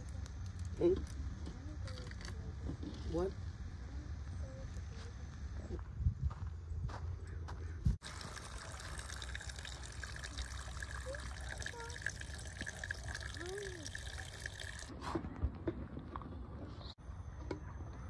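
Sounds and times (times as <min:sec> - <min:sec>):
running water trickling: 0:08.0 - 0:14.9.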